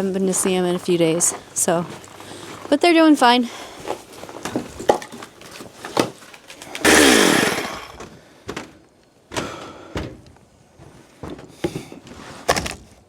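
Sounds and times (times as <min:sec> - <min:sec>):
chainsaw revving: 0:06.7 - 0:08.0
knocks and clunks: 0:08.0 - 0:12.8.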